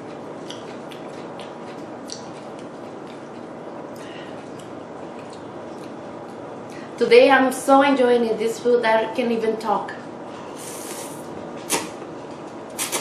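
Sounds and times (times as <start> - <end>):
wet chewing: 0.0 - 6.4.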